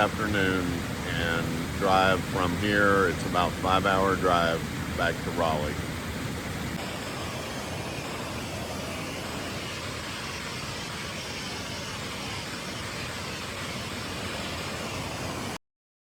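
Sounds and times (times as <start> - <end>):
rushing water of a creek: 0.0 - 15.6.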